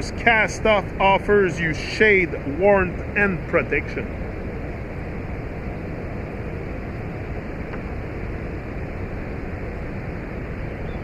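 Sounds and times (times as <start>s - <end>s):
low rushing outdoor noise: 0.0s - 11.0s.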